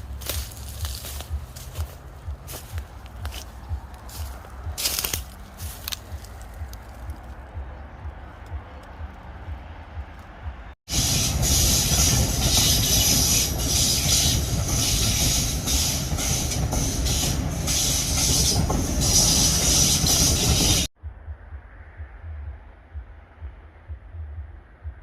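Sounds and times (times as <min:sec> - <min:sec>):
train wheels rumbling on rails: 0:00.0 - 0:21.0
strong hiss: 0:10.9 - 0:20.9.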